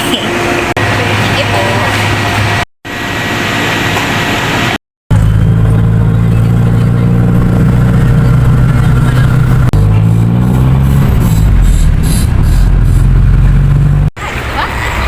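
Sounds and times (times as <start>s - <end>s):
noisy background: 0.0s - 10.2s
vehicle engine humming: 0.0s - 15.0s.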